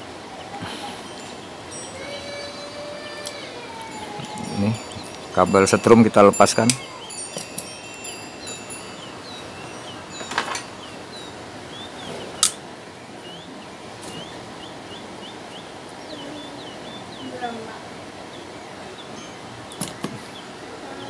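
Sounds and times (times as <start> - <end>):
steady background hiss: 0.0 - 21.0
small bird chirping: 4.1 - 21.0.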